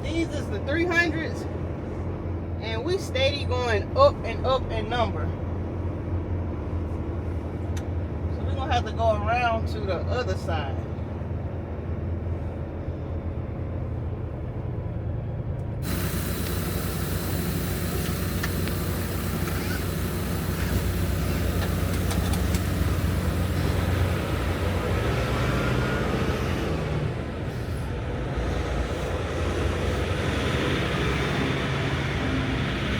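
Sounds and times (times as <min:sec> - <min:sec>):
truck diesel engine running: 0:12.1 - 0:32.9
loud hiss: 0:15.8 - 0:25.0.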